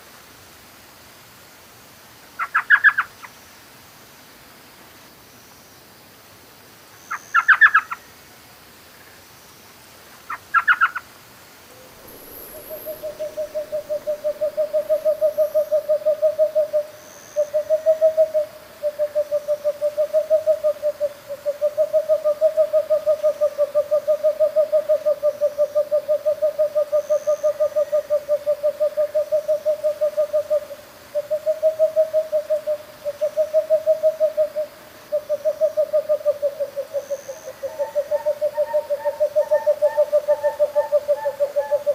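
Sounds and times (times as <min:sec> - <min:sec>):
owl calling: 0:02.4 - 0:03.1, 0:07.1 - 0:08.0, 0:10.3 - 0:11.0, 0:11.7 - 0:41.9
owl pulsing trill: 0:11.7 - 0:41.9.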